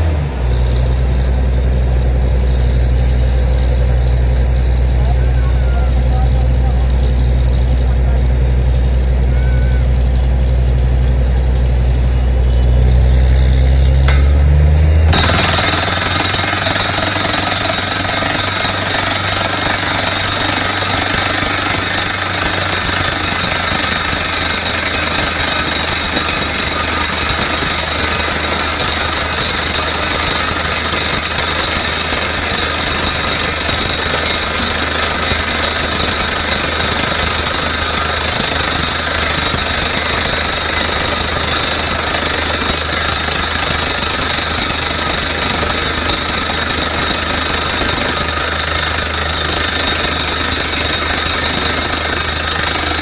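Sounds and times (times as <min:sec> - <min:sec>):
drilling rig engine droning: 0:00.0 - 0:53.0
drilling hammer rattling: 0:15.1 - 0:53.0.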